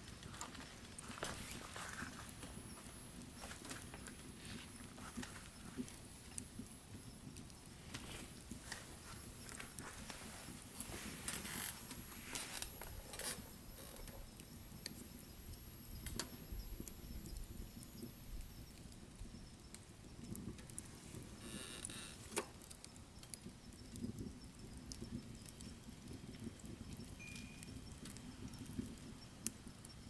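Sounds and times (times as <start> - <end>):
fire hiss: 0.0 - 30.0
low rumble of flames: 0.0 - 30.0
wood fire crackling and popping: 0.0 - 30.0.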